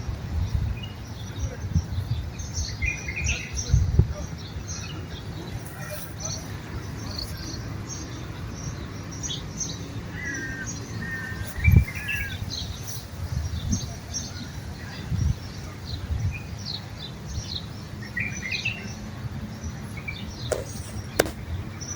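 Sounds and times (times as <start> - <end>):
dull thump: 20.5 - 21.5.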